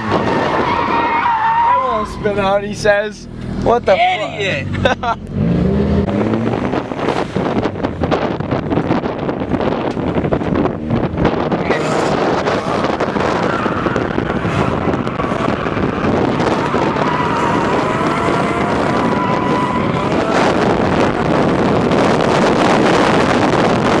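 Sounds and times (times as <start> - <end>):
car engine running hard: 1.9 - 24.0
wind buffeting microphone: 5.2 - 24.0.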